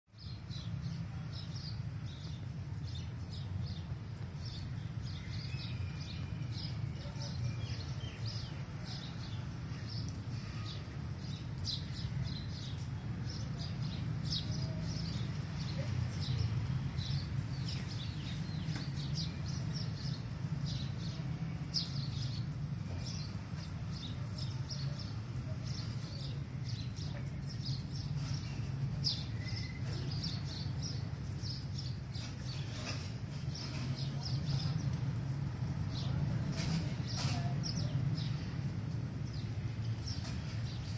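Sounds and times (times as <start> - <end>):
small birds chirping: 0.1 - 40.9.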